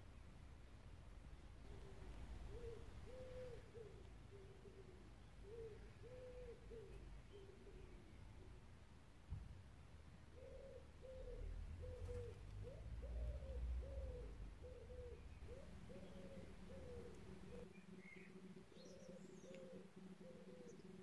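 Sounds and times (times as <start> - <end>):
bird cooing: 1.6 - 8.7, 10.3 - 21.0.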